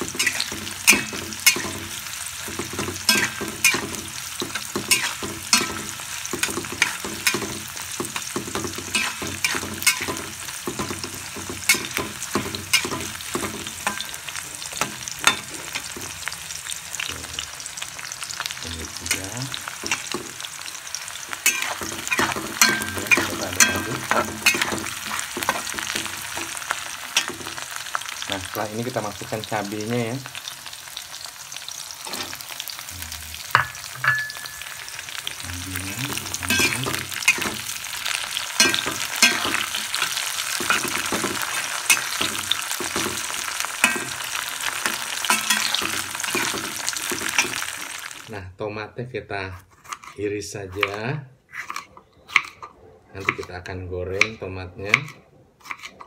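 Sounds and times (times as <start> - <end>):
metal spatula scraping wok: 0.0 - 16.2, 19.0 - 28.0, 32.0 - 47.8
sizzling in hot oil: 0.0 - 48.4.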